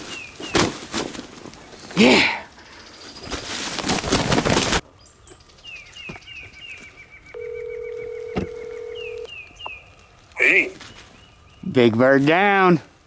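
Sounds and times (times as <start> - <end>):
songbird chirping rapidly: 4.9 - 12.2
telephone ringback tone: 7.4 - 9.3.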